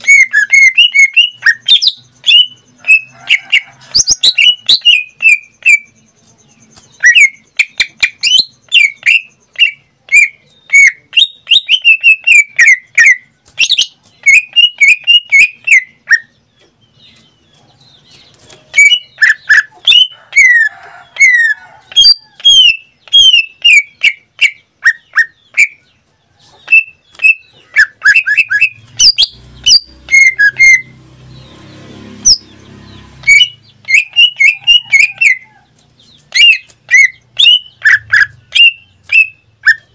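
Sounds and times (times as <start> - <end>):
bird singing whistled notes: 0.0 - 3.1, 4.1 - 16.4, 22.0 - 25.8, 26.7 - 31.5, 32.3 - 39.9.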